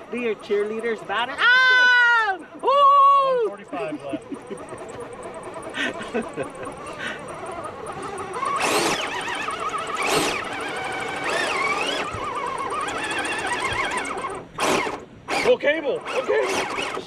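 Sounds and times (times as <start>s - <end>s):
electric motor and gears whining: 0.0s - 17.0s.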